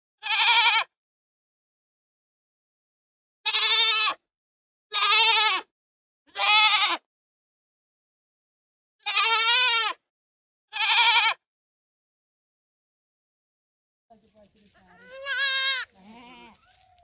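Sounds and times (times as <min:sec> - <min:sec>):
goat bleating: 0:00.2 - 0:00.8, 0:03.5 - 0:04.2, 0:05.0 - 0:05.7, 0:06.3 - 0:07.0, 0:09.0 - 0:10.0, 0:10.8 - 0:11.4, 0:14.2 - 0:17.0.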